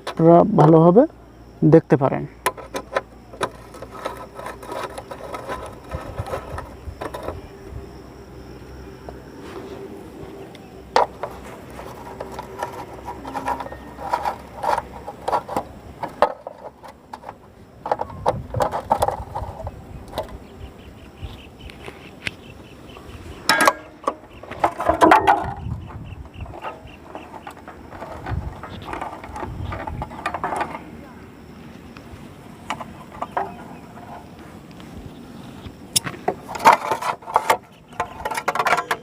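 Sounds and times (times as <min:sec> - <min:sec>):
metal parts clinking: 0:10.9 - 0:20.3, 0:23.4 - 0:25.7, 0:26.3 - 0:30.9.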